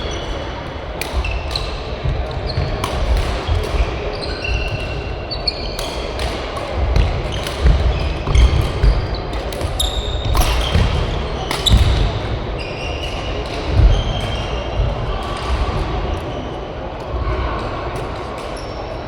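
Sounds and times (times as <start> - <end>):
shoes squeaking on court floor: 0.0 - 14.7
racket hitting shuttlecock: 0.9 - 12.3.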